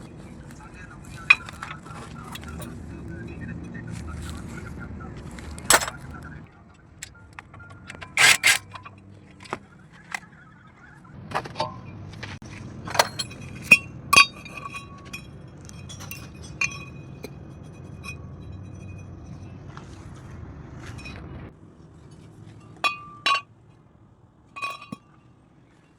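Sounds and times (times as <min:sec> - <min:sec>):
metal tools clinking: 0:00.4 - 0:04.4, 0:05.3 - 0:06.3, 0:06.9 - 0:10.2, 0:12.8 - 0:19.9, 0:22.0 - 0:23.5, 0:24.6 - 0:25.9.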